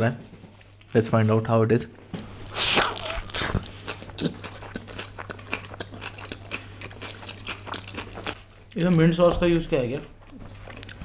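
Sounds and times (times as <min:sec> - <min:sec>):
wet chewing: 0:02.3 - 0:09.1, 0:10.1 - 0:11.0
pizza crust crunching: 0:02.4 - 0:09.2.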